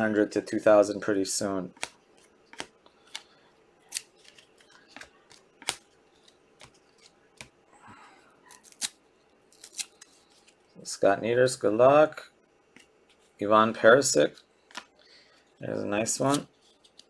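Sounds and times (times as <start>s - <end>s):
cards clicking and snapping: 1.7s - 7.6s, 14.7s - 14.9s.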